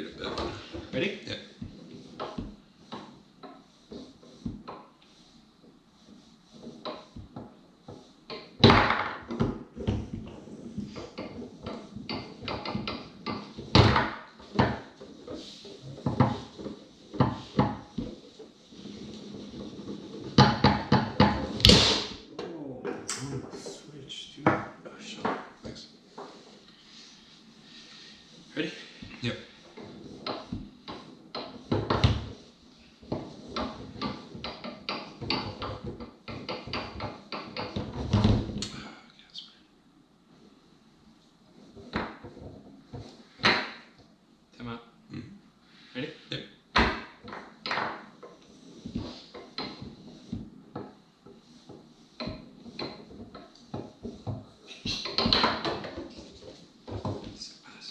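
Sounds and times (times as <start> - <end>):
foosball rods banging: 0.0 - 38.7, 41.2 - 44.2, 46.6 - 57.4
foosball ball clacking: 6.5 - 23.6, 29.6 - 38.7, 41.6 - 44.0, 46.8 - 57.3.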